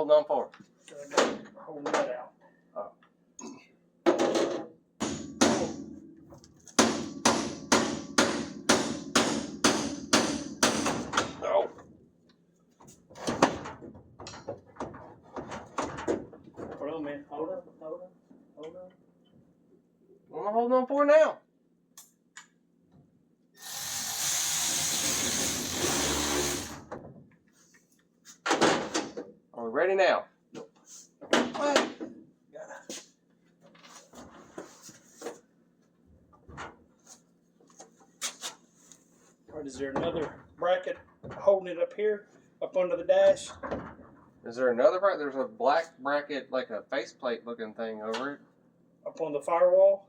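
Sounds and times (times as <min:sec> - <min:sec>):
power drill running: 0:23.6 - 0:26.8.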